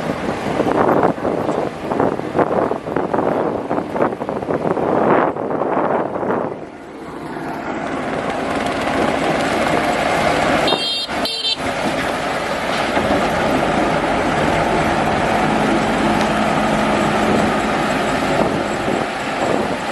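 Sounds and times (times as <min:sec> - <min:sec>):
construction machinery engine running: 0:00.0 - 0:19.9
horn toots: 0:10.6 - 0:11.7.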